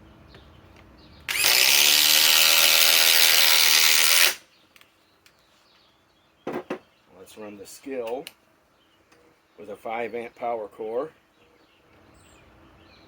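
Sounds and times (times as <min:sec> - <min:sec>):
impact driver driving screw into wood: 0:01.3 - 0:04.4.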